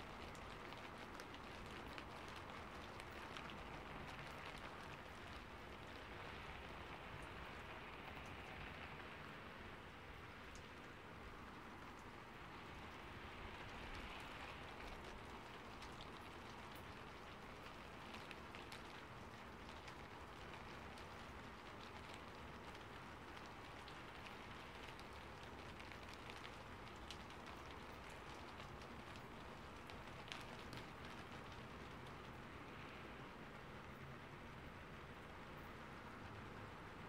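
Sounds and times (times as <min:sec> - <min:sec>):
faint steady rain: 0:00.0 - 0:37.0
drops ticking on leaves: 0:13.7 - 0:33.0.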